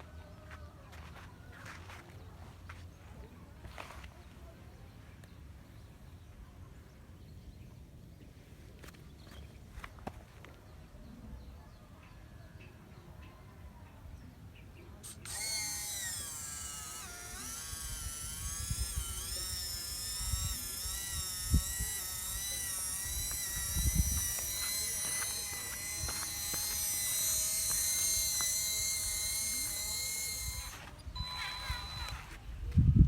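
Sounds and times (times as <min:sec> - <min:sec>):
electric motor and gearbox whining: 0:15.0 - 0:32.8.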